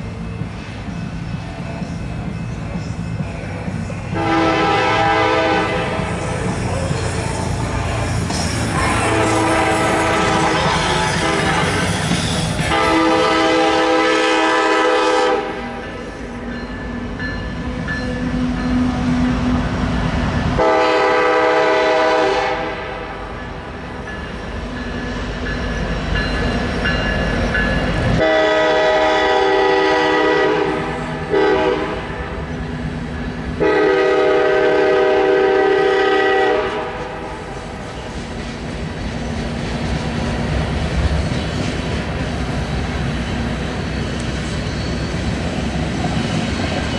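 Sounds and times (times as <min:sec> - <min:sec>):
train rumbling on rails: 0:00.0 - 0:46.9
locomotive air horn: 0:04.1 - 0:06.3, 0:08.8 - 0:12.0, 0:12.6 - 0:15.8, 0:20.6 - 0:23.2, 0:28.2 - 0:32.4, 0:33.6 - 0:37.3.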